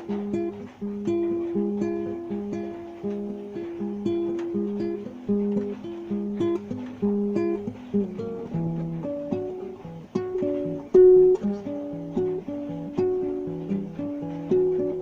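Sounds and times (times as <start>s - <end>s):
guitar plucked notes and chords: 0.0s - 15.0s.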